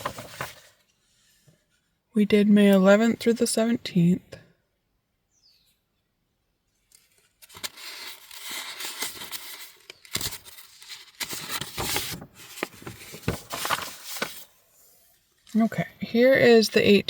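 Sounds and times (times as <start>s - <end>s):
paper rustling and shuffling: 0.0s - 1.9s, 6.8s - 15.7s.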